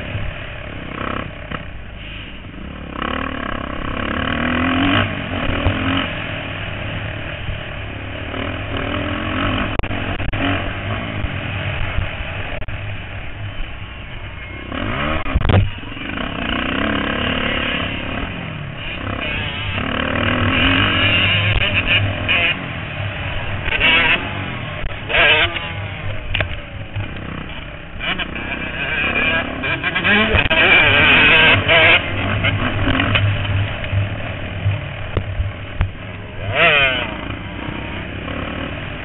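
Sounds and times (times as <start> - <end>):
motocross bikes racing: 0.0 - 39.0
motorbike passing close: 0.0 - 39.0.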